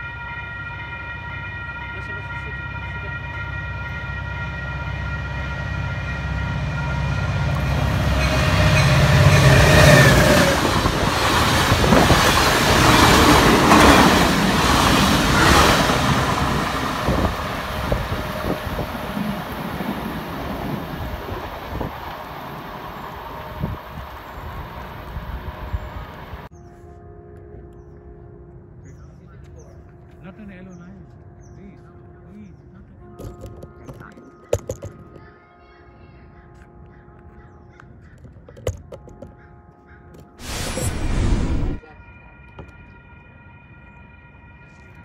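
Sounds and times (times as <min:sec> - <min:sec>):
train horn: 0:00.0 - 0:28.1, 0:41.8 - 0:45.0
train wheels rushing: 0:07.4 - 0:26.5.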